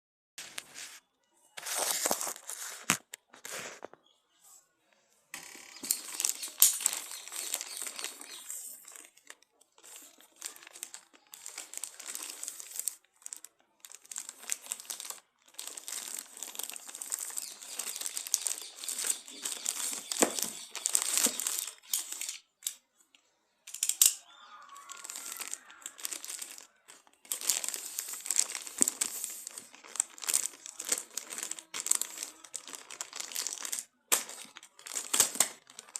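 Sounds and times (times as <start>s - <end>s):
plastic packaging crinkling: 1.6s - 4.0s, 5.4s - 22.8s, 23.7s - 35.9s.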